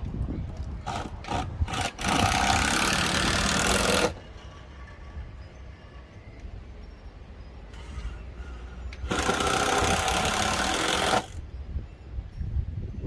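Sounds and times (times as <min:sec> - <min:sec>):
drill driving screw into wood: 0:00.8 - 0:04.2, 0:09.0 - 0:11.4.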